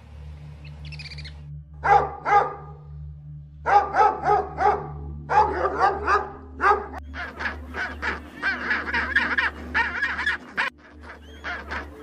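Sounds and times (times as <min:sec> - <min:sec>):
dog barking: 0:01.8 - 0:02.8, 0:03.6 - 0:07.0
penguins honking: 0:03.7 - 0:12.0.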